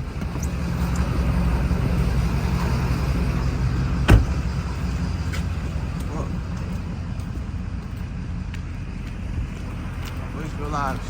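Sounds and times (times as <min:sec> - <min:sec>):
car engine rumble: 0:00.0 - 0:11.0
road noise: 0:00.0 - 0:11.0
sharp thump: 0:04.0 - 0:04.5.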